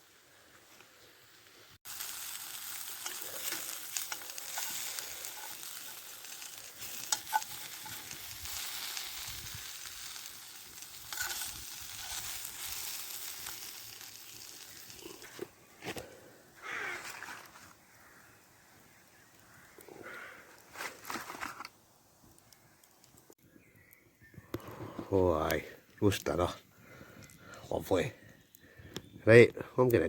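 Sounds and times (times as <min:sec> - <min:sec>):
food sizzling over campfire: 0:00.0 - 0:24.0, 0:24.6 - 0:29.4
sharp crackling clicks: 0:02.0 - 0:09.3, 0:27.1 - 0:27.6.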